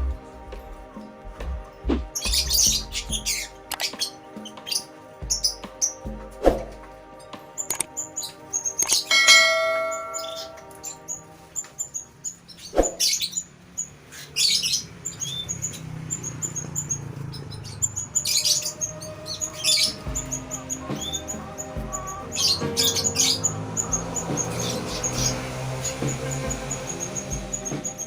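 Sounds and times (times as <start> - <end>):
canaries chirping: 0.0 - 28.0
bell-like ring: 9.1 - 10.8.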